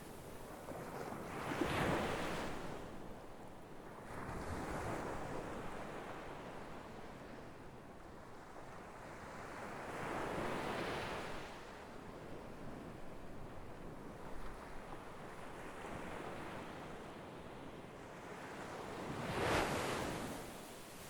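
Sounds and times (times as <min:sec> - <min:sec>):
sea waves breaking on shore: 0:18.4 - 0:21.0.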